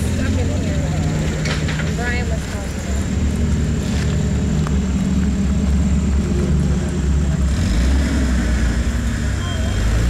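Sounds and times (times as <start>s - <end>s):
engine running at low revs: 0.0s - 10.0s.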